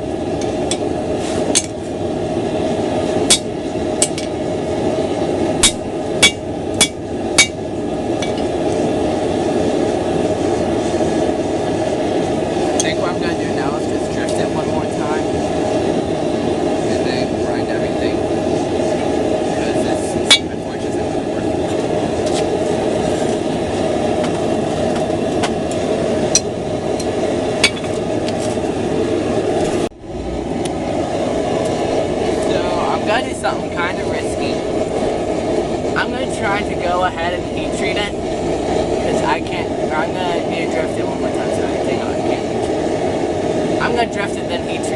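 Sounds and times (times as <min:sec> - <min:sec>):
forge roaring: 0:00.0 - 0:44.9
hammer ringing on anvil: 0:05.6 - 0:07.6.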